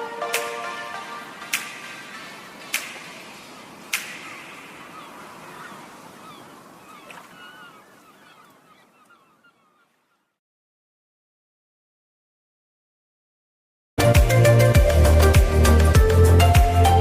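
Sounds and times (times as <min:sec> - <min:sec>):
birds calling: 0:01.4 - 0:10.4.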